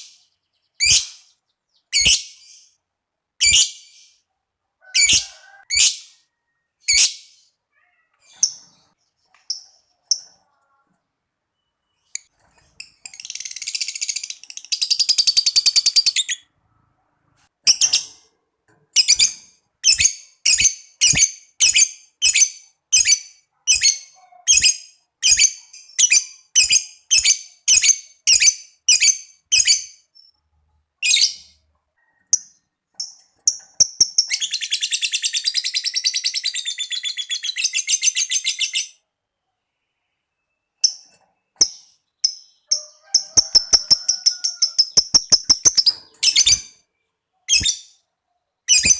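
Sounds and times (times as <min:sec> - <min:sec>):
lovebird chirping: 0:00.0 - 0:04.3, 0:04.9 - 0:17.0, 0:19.0 - 0:48.9
lovebird chattering trill: 0:42.6 - 0:46.7.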